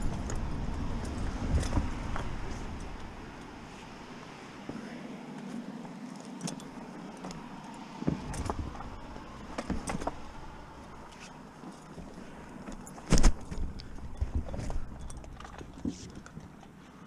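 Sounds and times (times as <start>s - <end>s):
metal gear jingling: 13.7s - 16.8s.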